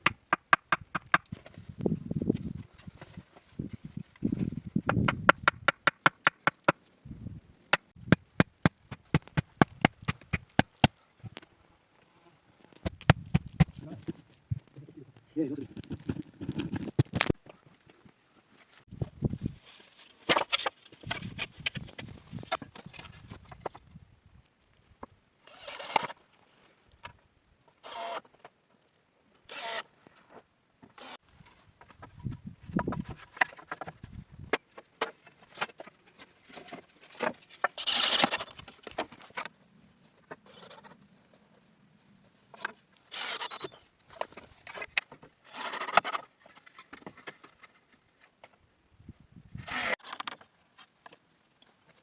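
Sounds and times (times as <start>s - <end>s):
hand tool striking wood: 0.0s - 1.4s, 4.9s - 6.9s, 7.7s - 11.0s.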